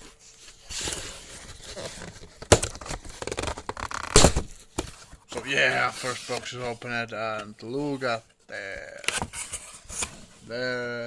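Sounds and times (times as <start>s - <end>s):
cardboard and packing rustling: 0.0s - 10.6s
tape tearing: 0.7s - 4.8s.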